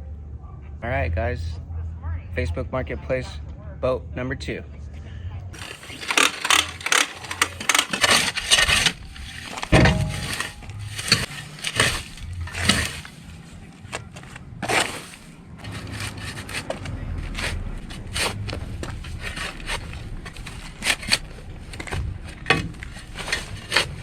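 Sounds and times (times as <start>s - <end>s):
objects knocking and clattering: 5.6s - 24.0s
objects scraping: 5.6s - 24.0s.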